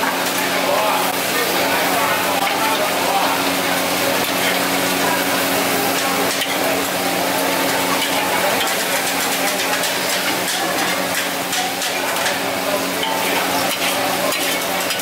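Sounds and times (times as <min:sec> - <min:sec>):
noodles sizzling in a wok: 0:00.0 - 0:15.0
metal utensils scraping a wok: 0:06.2 - 0:15.0.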